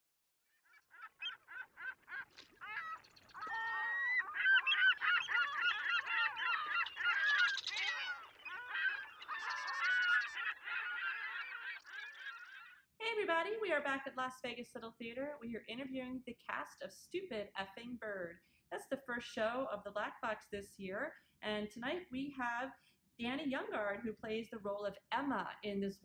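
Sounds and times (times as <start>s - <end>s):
flock of birds honking: 0.9s - 12.8s.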